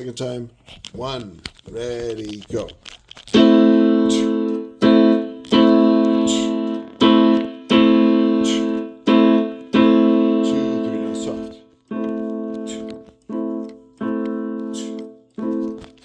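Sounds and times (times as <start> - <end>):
piano chord struck: 3.4 - 16.0.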